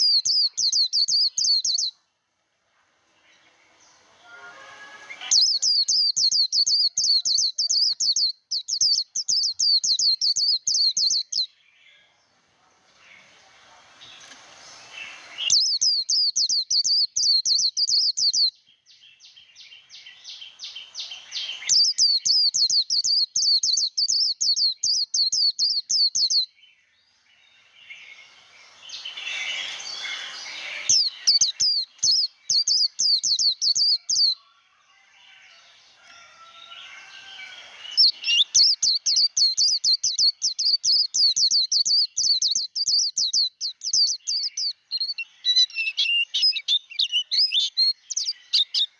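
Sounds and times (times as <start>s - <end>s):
bird singing rapid high notes: 3.7s - 11.5s, 14.8s - 18.5s, 27.5s - 34.3s, 37.2s - 48.9s
soft bird warbling: 28.1s - 31.7s.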